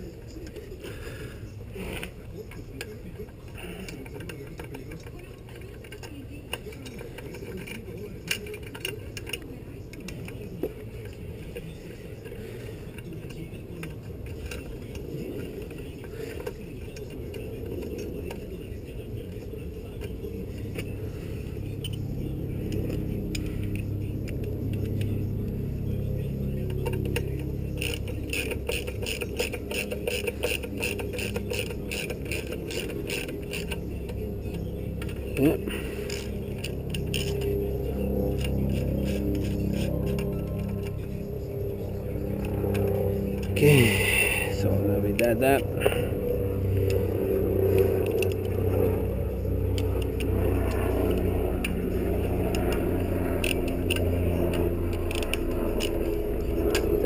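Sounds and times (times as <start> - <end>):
low steady hum: 0.0 - 57.0
hand ratchet clicking: 27.8 - 34.2, 49.8 - 56.9.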